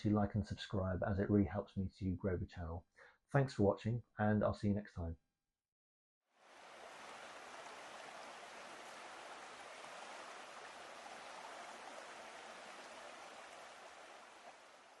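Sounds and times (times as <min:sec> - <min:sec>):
water rushing: 0:06.4 - 0:15.0.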